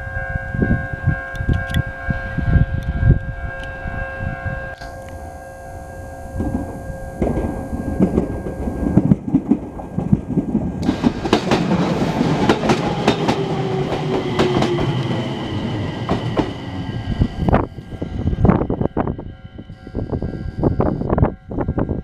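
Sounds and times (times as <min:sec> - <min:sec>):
train whine falling in pitch: 0:00.0 - 0:10.2, 0:10.8 - 0:22.0
train rumble: 0:00.0 - 0:22.0.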